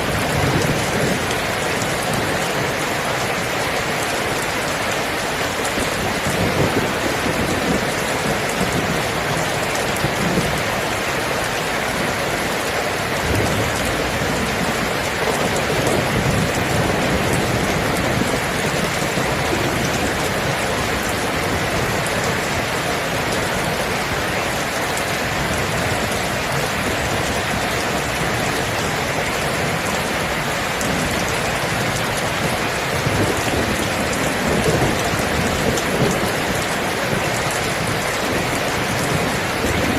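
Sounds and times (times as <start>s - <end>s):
thunder rumbling: 0.0s - 2.7s, 5.2s - 39.9s
heavy rain: 0.0s - 39.9s.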